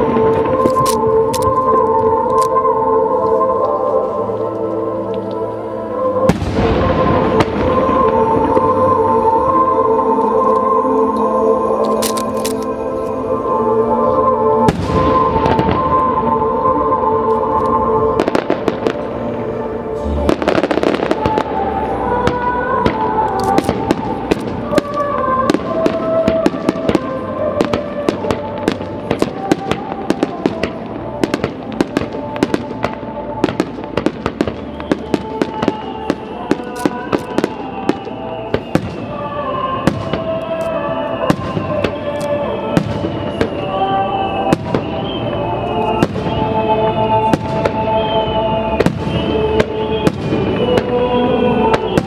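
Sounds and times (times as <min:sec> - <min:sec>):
music: 0:00.0 - 0:52.0
fireworks bangs and crackling pops: 0:06.3 - 0:08.6, 0:22.2 - 0:40.6, 0:41.2 - 0:43.8, 0:44.4 - 0:52.0.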